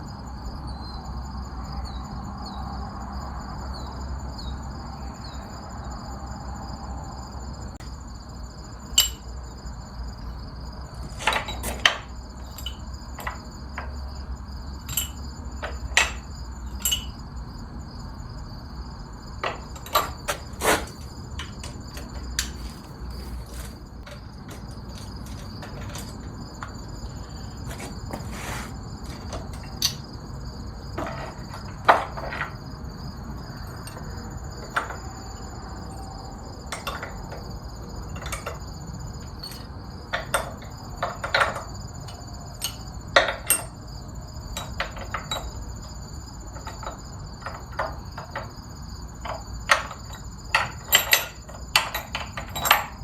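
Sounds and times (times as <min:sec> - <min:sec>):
crickets chirping: 0:00.0 - 0:53.0
metallic clinks and knocks: 0:08.8 - 0:09.6, 0:11.0 - 0:17.4, 0:19.4 - 0:28.2, 0:29.0 - 0:30.1, 0:33.4 - 0:43.9, 0:44.5 - 0:53.0.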